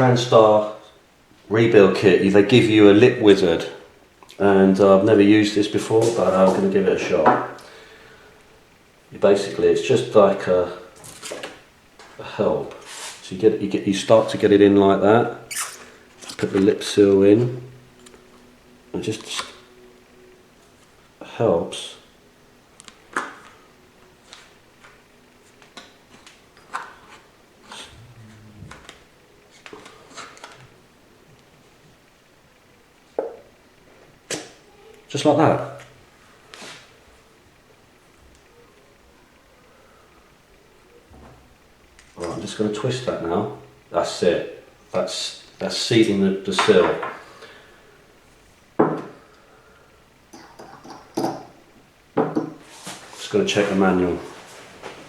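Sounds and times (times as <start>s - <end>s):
short low hum: 27.7s - 29.3s
tools knocking on work surface: 52.2s - 52.6s.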